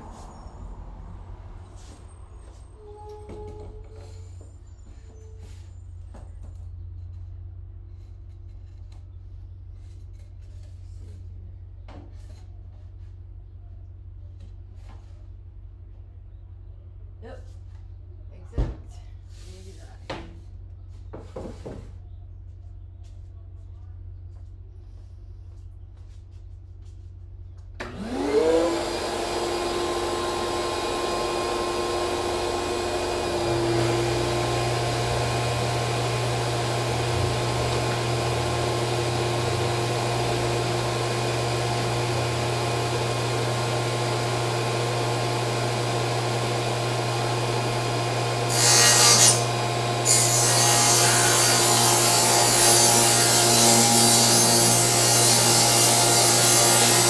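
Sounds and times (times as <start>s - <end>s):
table saw motor whine: 27.8s - 57.0s
saw blade rasping through plywood: 27.9s - 57.0s.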